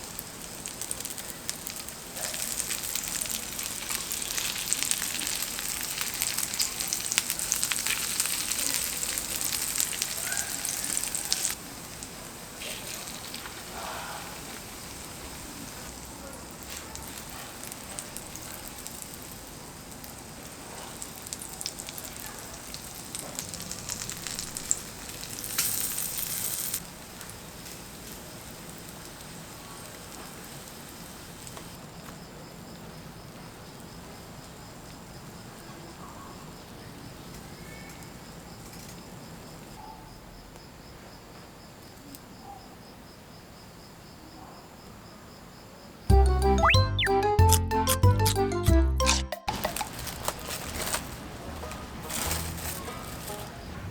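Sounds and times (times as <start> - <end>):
oil sizzling and crackling: 0.0 - 31.8, 49.5 - 53.9
night insects chirping: 0.0 - 46.2.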